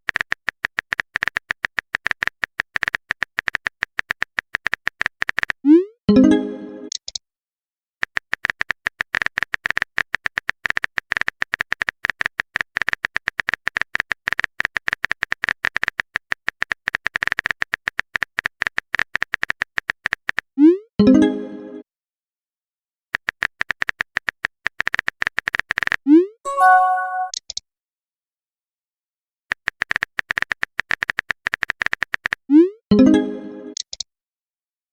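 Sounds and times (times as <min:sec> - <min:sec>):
phone keyboard typing clicks: 0:00.1 - 0:05.6, 0:08.0 - 0:20.4, 0:23.2 - 0:26.0, 0:29.5 - 0:32.4
short rising chime: 0:26.5 - 0:27.3.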